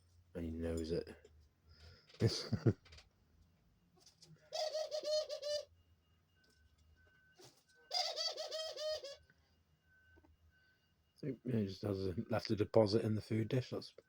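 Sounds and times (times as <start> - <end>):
dove cooing: 4.4 - 5.7, 7.9 - 9.3.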